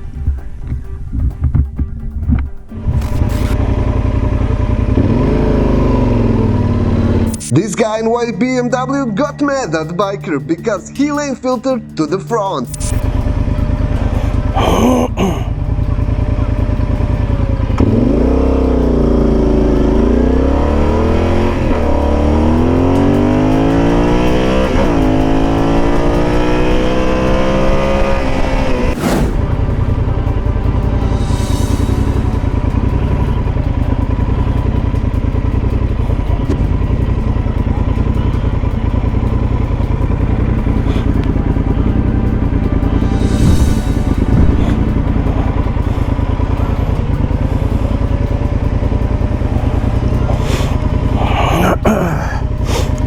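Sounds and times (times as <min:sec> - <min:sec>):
motorcycle engine accelerating: 0:00.0 - 0:09.2, 0:12.8 - 0:53.0
wind rush: 0:28.3 - 0:33.6, 0:43.1 - 0:45.9.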